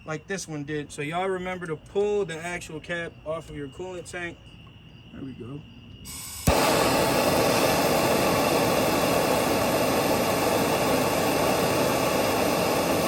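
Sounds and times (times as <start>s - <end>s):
loud steady rushing noise: 6.4s - 13.0s.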